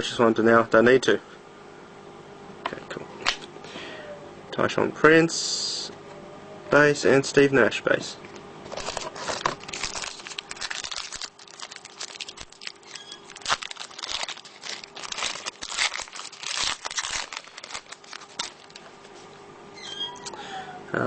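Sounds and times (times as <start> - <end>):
foil wrapper tearing and crinkling: 8.7 - 18.9.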